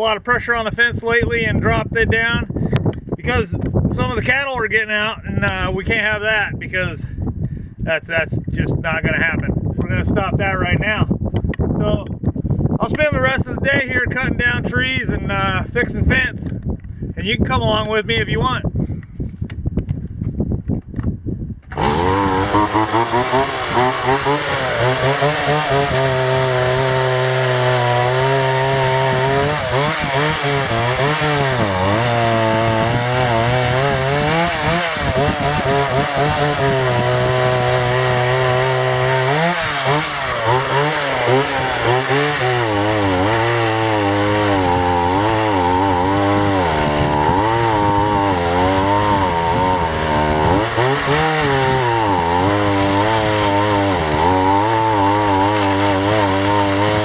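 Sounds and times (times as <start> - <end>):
chainsaw cutting wood: 21.6 - 57.0.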